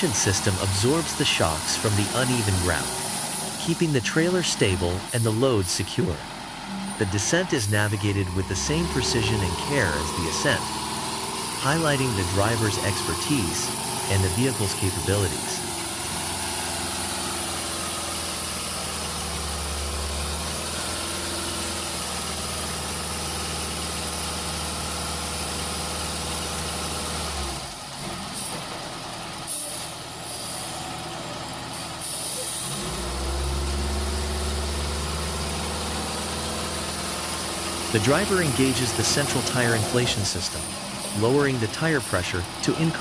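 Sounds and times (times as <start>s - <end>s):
truck engine running: 0.0s - 43.0s
air brakes hissing: 32.0s - 32.8s.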